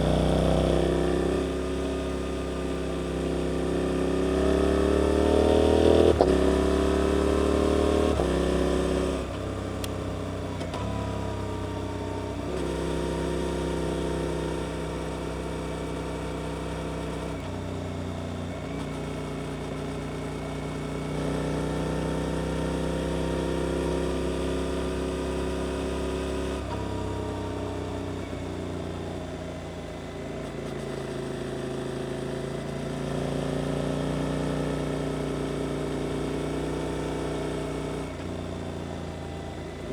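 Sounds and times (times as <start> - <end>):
motorcycle engine revving: 0.0 - 29.7.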